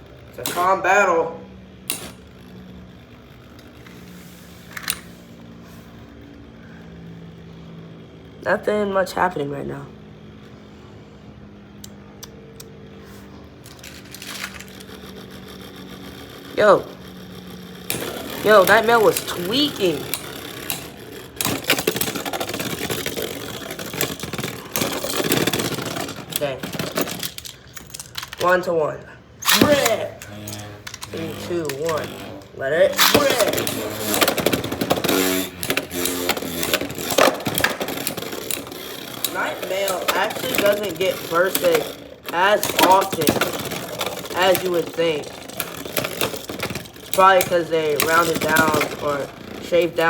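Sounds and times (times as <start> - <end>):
spinning tops whirring: 0.0 - 50.0.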